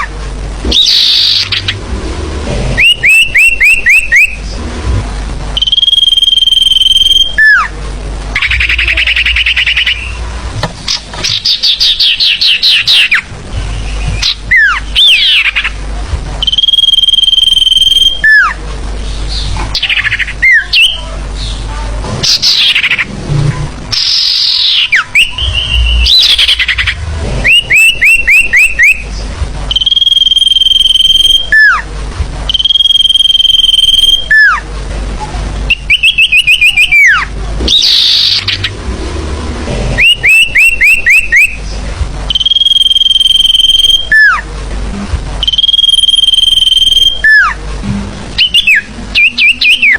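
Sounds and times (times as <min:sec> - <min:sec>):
high bird whistle: 0:00.7 - 0:01.8, 0:02.8 - 0:04.4, 0:05.6 - 0:07.7, 0:08.4 - 0:10.2, 0:11.2 - 0:15.6, 0:16.4 - 0:18.6, 0:23.9 - 0:29.1, 0:29.7 - 0:31.8, 0:32.5 - 0:34.6, 0:35.7 - 0:38.7, 0:40.0 - 0:41.6, 0:42.3 - 0:44.4, 0:45.4 - 0:47.6, 0:48.4 - 0:49.9
downward-swooping bird notes: 0:00.7 - 0:04.8, 0:08.3 - 0:10.4, 0:23.9 - 0:31.8, 0:35.7 - 0:41.7, 0:48.4 - 0:49.9.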